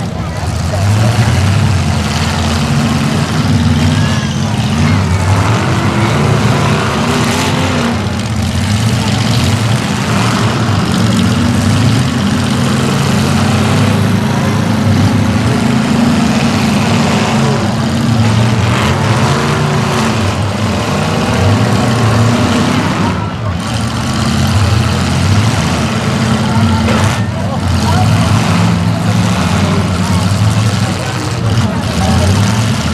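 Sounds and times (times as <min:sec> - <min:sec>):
car engines running loud: 0:00.0 - 0:32.9.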